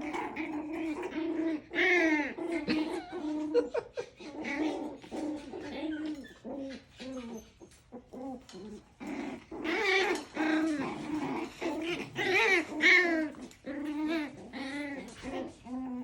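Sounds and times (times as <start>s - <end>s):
puppies yipping and whining: 0.9s - 16.0s
puppies squealing: 4.6s - 8.2s.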